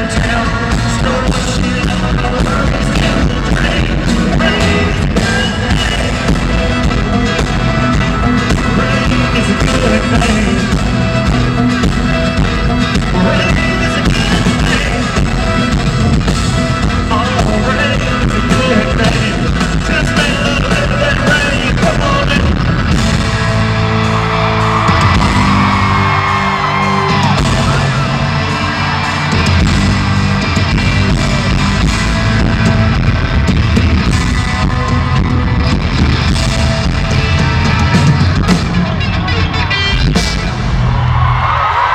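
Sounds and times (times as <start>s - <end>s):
person singing: 0.0s - 11.8s, 12.4s - 22.7s
country-rock band playing: 0.0s - 41.9s
crowd yelling: 0.0s - 41.9s.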